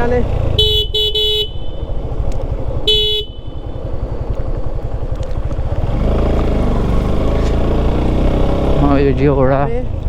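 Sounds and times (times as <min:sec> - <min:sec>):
motorcycle engine pulling uphill: 0:00.0 - 0:10.0
short horn beep: 0:00.5 - 0:01.9.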